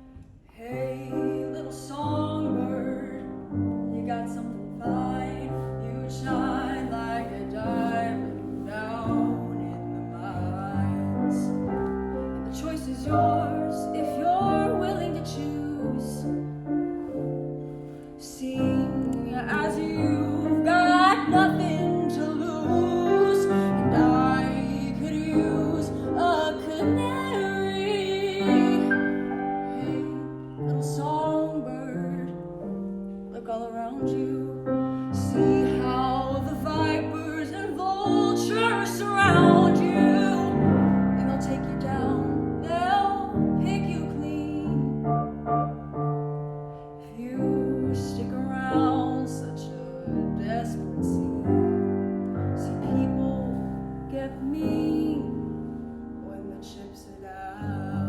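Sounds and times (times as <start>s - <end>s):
piano accompaniment: 0.0s - 58.0s
person singing with vibrato: 18.2s - 32.4s, 33.3s - 45.3s.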